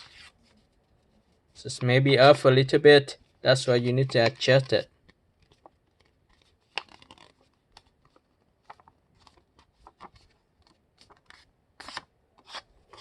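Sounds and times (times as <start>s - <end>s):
paper crinkling and rustling: 3.8s - 13.0s.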